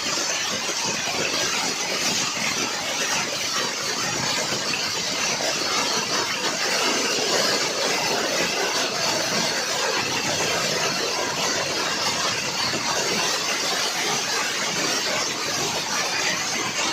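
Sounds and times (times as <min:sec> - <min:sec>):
hail and heavy rain pelting: 0:00.0 - 0:16.9.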